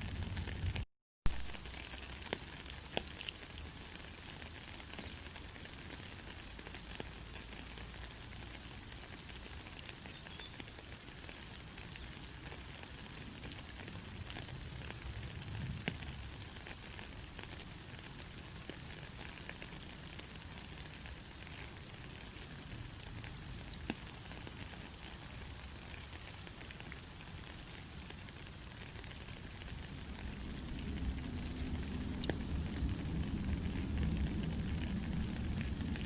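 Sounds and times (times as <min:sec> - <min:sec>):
faint crackles and ticks: 0:00.0 - 0:36.0
soft low rumble: 0:29.8 - 0:36.0.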